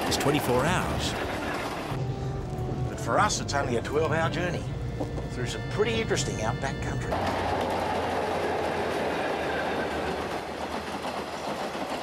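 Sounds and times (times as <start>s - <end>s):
train wheels rolling on rails: 0.0s - 2.0s, 7.1s - 12.0s.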